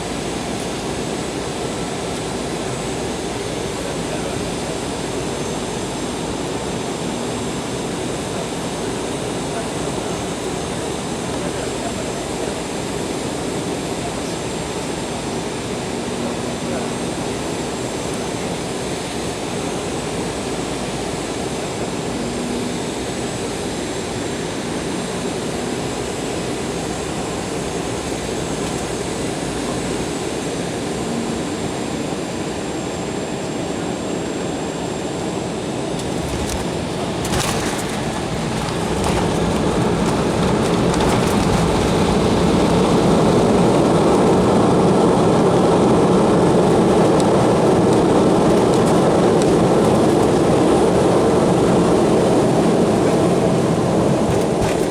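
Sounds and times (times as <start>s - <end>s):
wheels touching down knocks: 36.0s - 43.6s, 54.2s - 54.9s.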